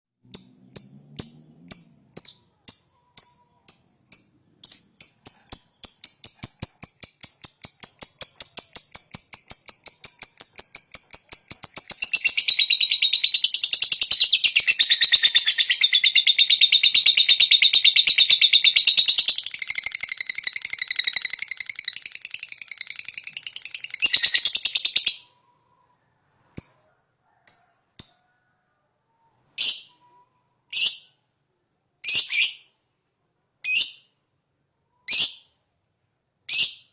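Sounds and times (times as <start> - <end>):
lovebird ticking calls: 0.3 - 25.3
lovebird chatter: 0.4 - 25.6.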